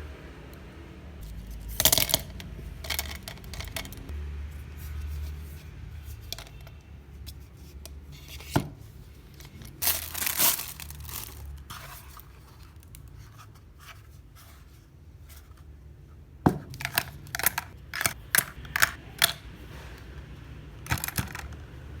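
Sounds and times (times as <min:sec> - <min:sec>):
packaging tearing and crinkling: 0:09.8 - 0:12.2.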